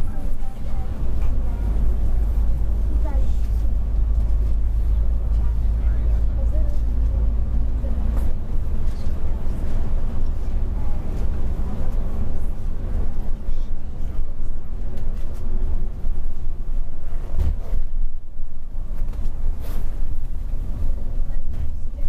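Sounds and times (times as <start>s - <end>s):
coach engine and road noise: 0.0s - 22.0s.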